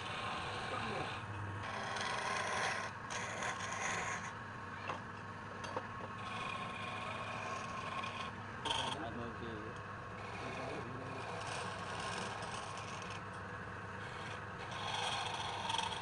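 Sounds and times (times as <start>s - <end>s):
turning tool scraping wood: 0.0s - 4.3s, 6.1s - 9.1s, 10.2s - 13.4s, 14.0s - 16.0s
wood lathe running: 0.0s - 4.3s, 6.0s - 16.0s.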